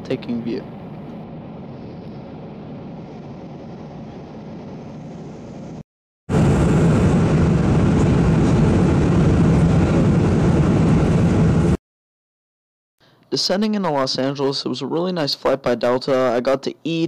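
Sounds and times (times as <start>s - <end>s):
airliner cabin noise: 0.0s - 11.8s.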